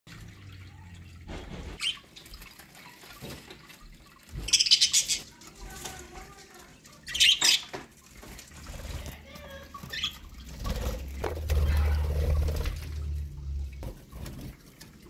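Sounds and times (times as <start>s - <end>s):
budgerigars chirping and chattering: 4.3s - 5.5s, 7.0s - 7.8s, 9.3s - 12.8s.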